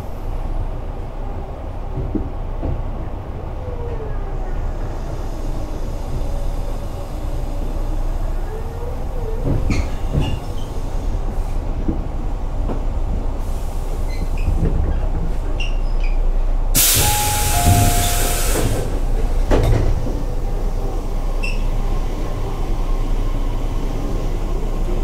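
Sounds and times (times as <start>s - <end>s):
electric train rumbling: 0.0s - 25.0s
train clanks: 1.7s - 3.3s, 4.8s - 25.0s
air hissing burst: 16.8s - 19.0s.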